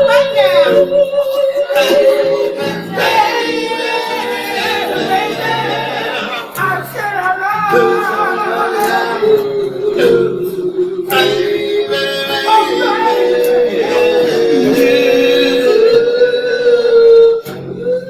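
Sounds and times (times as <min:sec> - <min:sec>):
male a cappella group singing: 0:00.0 - 0:18.0.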